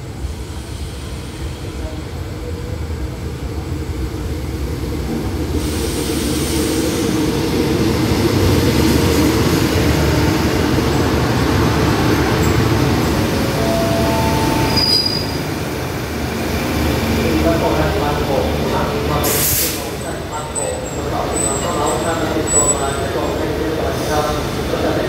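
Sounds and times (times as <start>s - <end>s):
train wheels rumbling on rails: 0.0s - 25.0s
high brake squeals: 13.6s - 15.5s, 20.7s - 23.0s.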